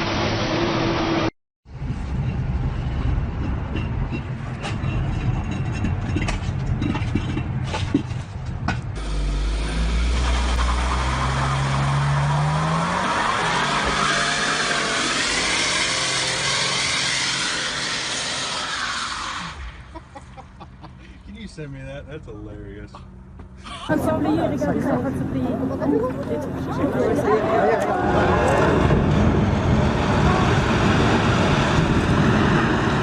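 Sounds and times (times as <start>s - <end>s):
heavy vehicle engine rumbling: 1.7s - 22.5s, 23.1s - 33.0s
sharp knocks and clatters: 2.3s - 9.0s
engine revving: 9.0s - 19.7s, 26.4s - 33.0s.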